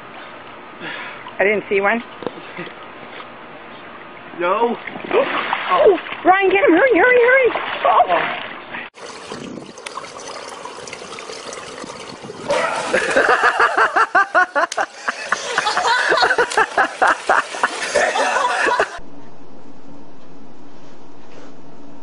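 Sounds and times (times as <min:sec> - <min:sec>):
water sloshing in a pool: 0:00.9 - 0:19.0
person laughing loudly: 0:12.5 - 0:19.0.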